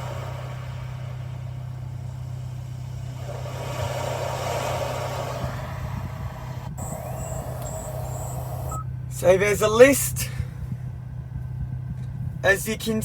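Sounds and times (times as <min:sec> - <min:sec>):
ocean waves track on car speakers: 0:00.0 - 0:10.0
car engine idling: 0:00.0 - 0:13.0.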